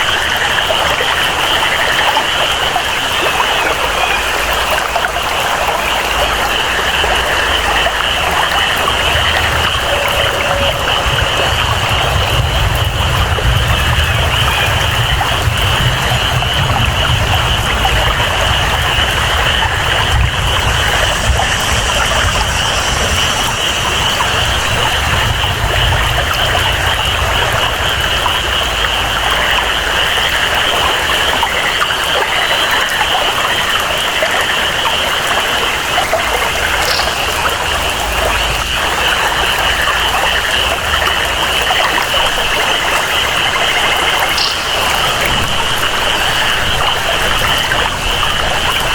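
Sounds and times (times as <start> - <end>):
frogs or insects calling: 0.0 - 48.9
rain falling: 0.0 - 48.9
water flowing: 0.0 - 48.9
low rumble: 5.8 - 30.4.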